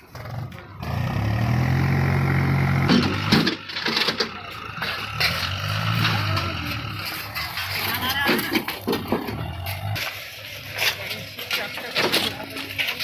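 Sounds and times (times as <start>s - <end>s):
tractor engine running: 0.0s - 13.0s
clatter: 2.7s - 13.0s.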